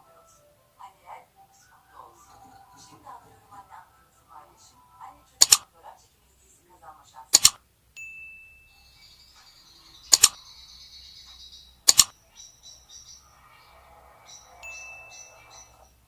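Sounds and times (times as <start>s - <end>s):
high twittering: 7.4s - 16.0s.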